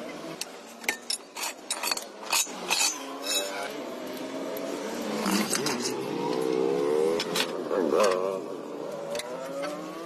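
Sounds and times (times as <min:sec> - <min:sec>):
metal tools clinking: 0:00.8 - 0:03.8, 0:05.2 - 0:06.6
vehicle engine: 0:01.8 - 0:10.0.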